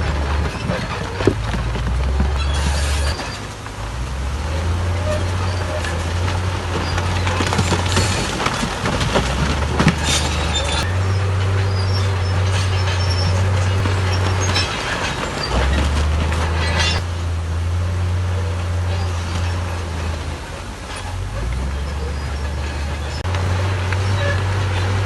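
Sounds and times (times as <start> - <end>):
bulldozer diesel engine: 0.0 - 25.0
steel tracks clanking and squealing: 0.0 - 25.0.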